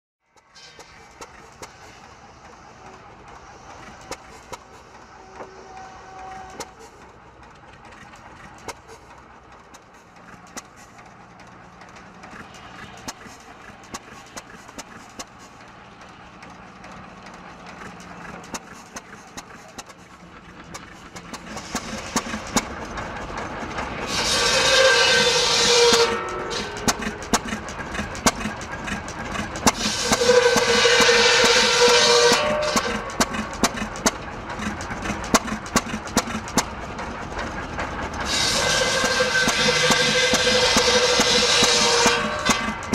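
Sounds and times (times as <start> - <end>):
circular buzzsaw cutting wood: 24.0 - 27.6, 29.6 - 33.8, 38.3 - 42.9.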